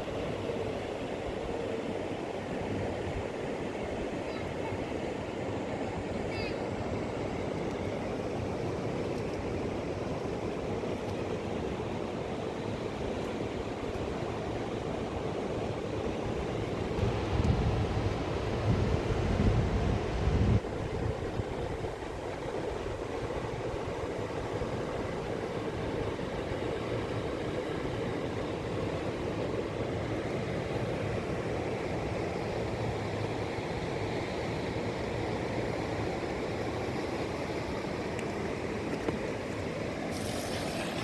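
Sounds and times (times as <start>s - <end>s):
wind buffeting microphone: 16.8s - 22.2s.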